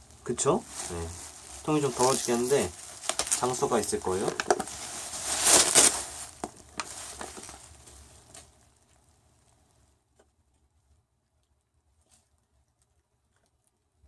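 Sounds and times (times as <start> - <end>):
packaging rustling and scraping: 0.0 - 9.0.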